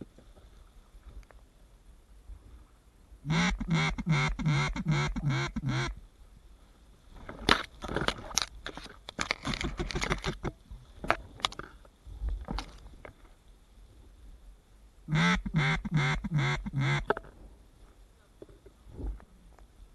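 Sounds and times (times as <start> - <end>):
duck quacking: 3.2 - 6.0, 15.1 - 17.1
crackling and rustling clicks: 7.2 - 13.4.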